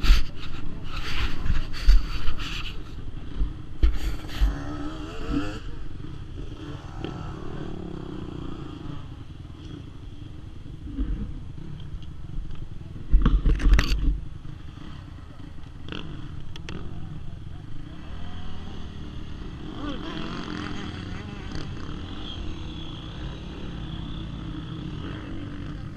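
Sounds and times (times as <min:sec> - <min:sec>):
scraping and buffeting on microphone: 0:00.0 - 0:06.0
motorbike engine revving: 0:00.0 - 0:11.7, 0:14.7 - 0:25.9.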